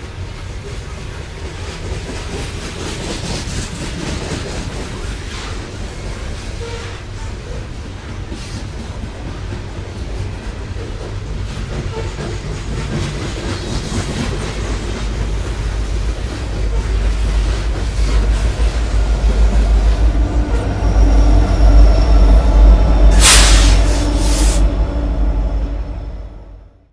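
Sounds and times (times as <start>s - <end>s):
train wheels clattering and squealing: 0.0s - 26.4s
diesel locomotive drone: 0.0s - 26.9s
sharp hiss: 23.1s - 24.7s.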